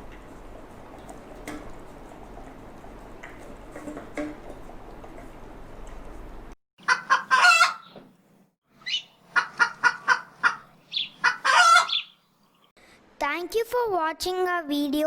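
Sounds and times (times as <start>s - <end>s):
hen cackling: 6.8s - 8.0s, 8.8s - 12.2s.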